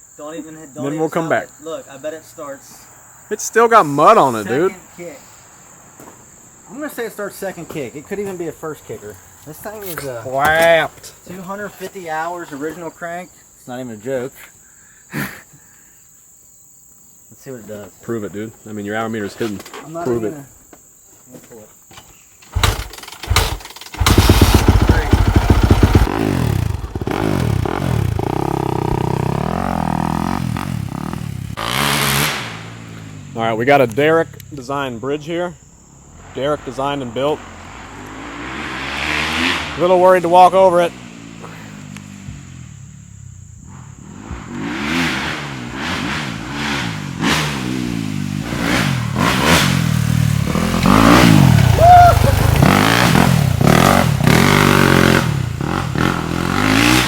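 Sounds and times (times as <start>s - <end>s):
dirt bike kick-start kicks: 9.5s - 11.3s, 21.5s - 31.0s, 49.1s - 57.0s
dirt bike engine revving: 22.5s - 34.4s, 35.6s - 57.0s.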